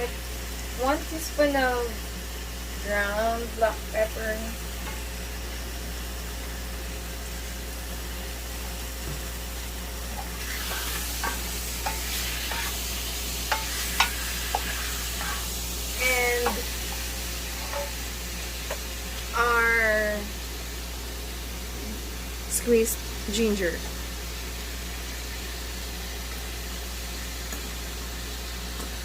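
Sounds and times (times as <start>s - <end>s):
chicken sizzling in oil: 0.0s - 21.6s, 22.2s - 29.0s.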